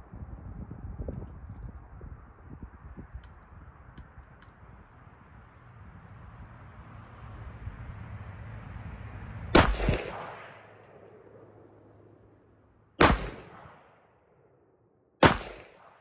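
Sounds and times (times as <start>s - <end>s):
rifle shots with echo: 9.6s - 11.5s, 13.0s - 14.1s, 15.2s - 16.0s.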